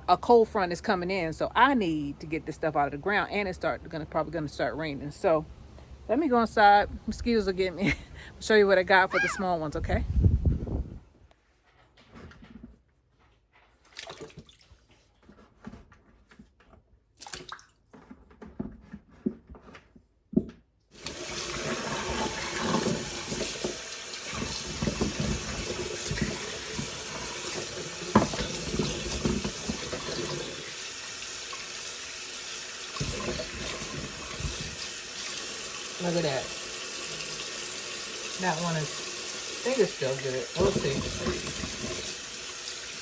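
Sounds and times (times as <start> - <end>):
tap water running into sink: 21.0 - 43.0
objects knocking in water: 24.3 - 30.4.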